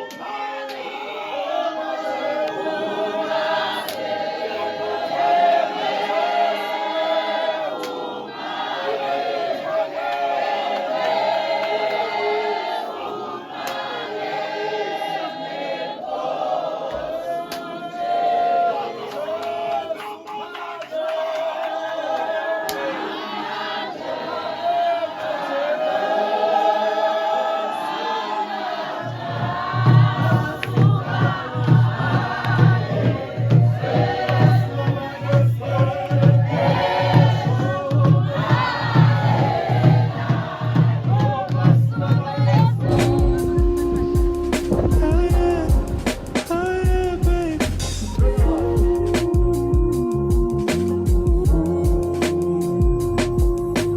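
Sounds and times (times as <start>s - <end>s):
choir singing in harmony: 0.0s - 53.9s
steady drum beat: 29.0s - 53.9s.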